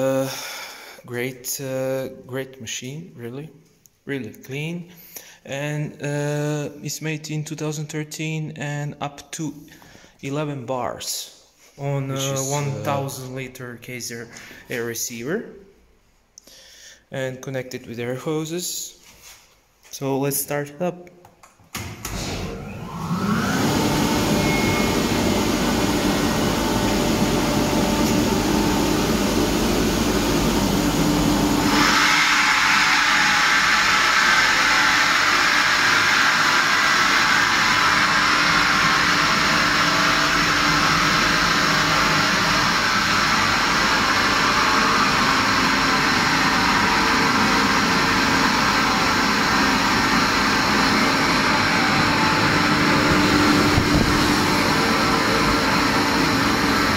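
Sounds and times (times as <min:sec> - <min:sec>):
air compressor motor humming: 0:22.0 - 0:56.9.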